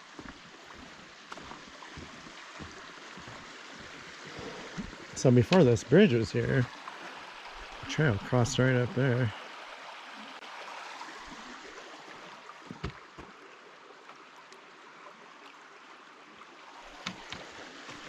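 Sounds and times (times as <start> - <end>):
stream water running: 0.0 - 18.0
soft thumps: 12.7 - 13.3.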